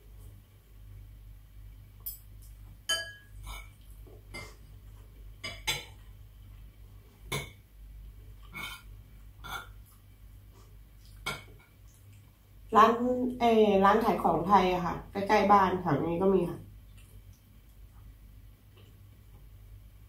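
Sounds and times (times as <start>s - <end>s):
low steady hum: 0.0s - 20.0s
metal spoon clinking on a plate: 2.9s - 3.7s.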